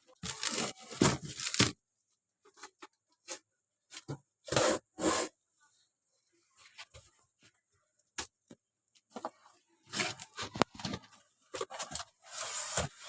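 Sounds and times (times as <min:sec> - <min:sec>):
knocks and rustles of items: 0:00.1 - 0:01.8, 0:06.6 - 0:13.0.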